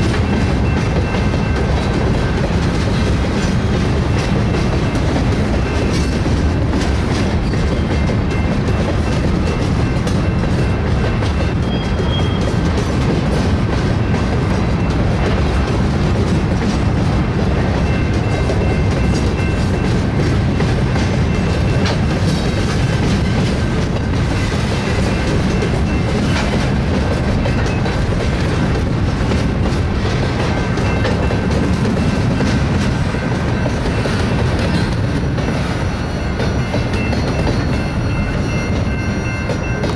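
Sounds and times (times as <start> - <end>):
train rumbling past: 0.0 - 39.9
wheels clacking over rail joints: 0.0 - 39.9.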